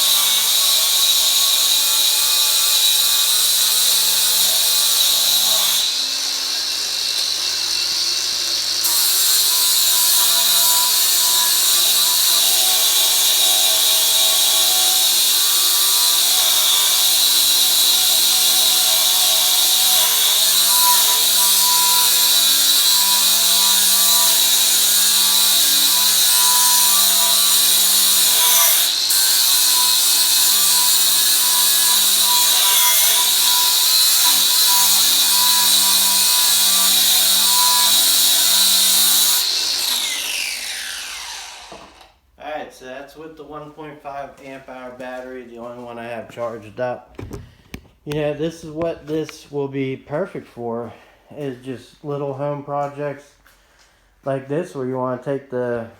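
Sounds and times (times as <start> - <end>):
angle grinder sanding paint: 0.0 - 41.9.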